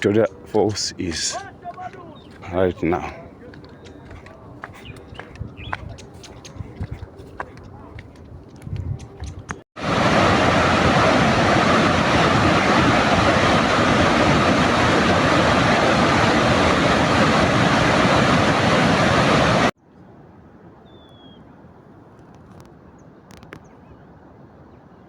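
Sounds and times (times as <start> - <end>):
steady rushing noise: 0.0 - 19.7.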